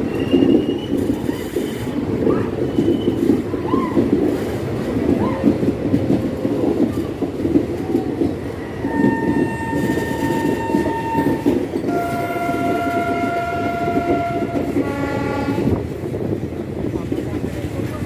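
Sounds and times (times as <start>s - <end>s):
train wheels rumbling: 0.0s - 18.0s
locomotive horn blasts: 8.9s - 15.8s.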